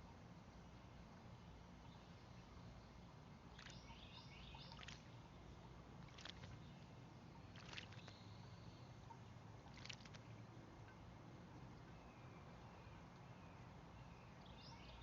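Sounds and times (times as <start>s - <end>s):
birds splashing in water: 3.4s - 11.1s
songbird warbling: 3.5s - 5.2s.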